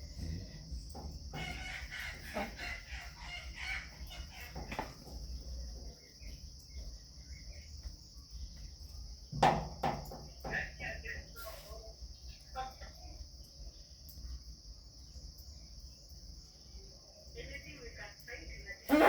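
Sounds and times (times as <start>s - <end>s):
crickets chirping: 0.0s - 19.0s
rooster crowing: 1.4s - 4.4s.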